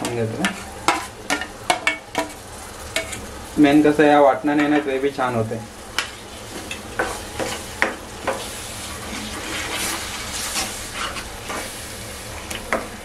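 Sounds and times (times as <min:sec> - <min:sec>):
paste sizzling in hot oil: 0:00.0 - 0:13.0
steel ladle scraping a pan: 0:06.5 - 0:11.7.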